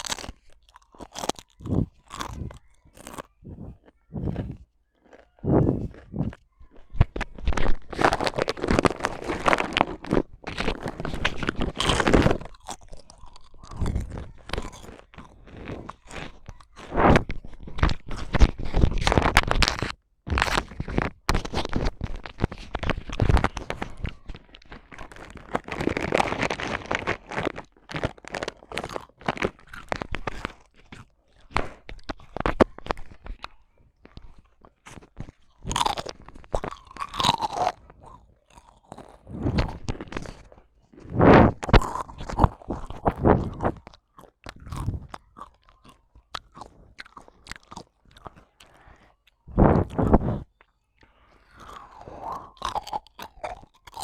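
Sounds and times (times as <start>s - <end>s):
loud crunching chewing: 0.0s - 54.0s.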